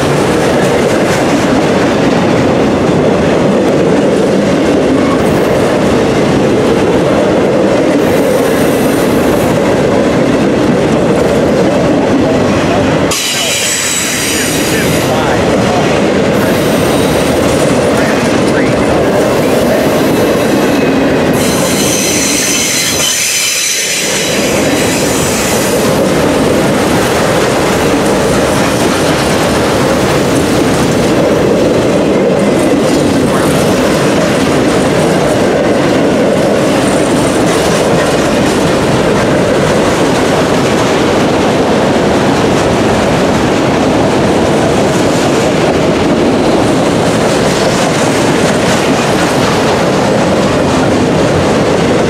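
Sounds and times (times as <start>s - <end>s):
steel wheels rumbling on rail: 0.0s - 52.0s
high-pitched wheel squeal: 21.4s - 24.4s.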